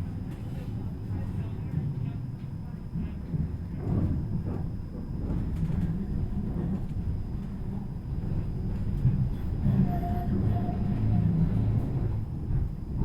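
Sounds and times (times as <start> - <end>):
tram wheels rumbling: 3.0 - 13.0.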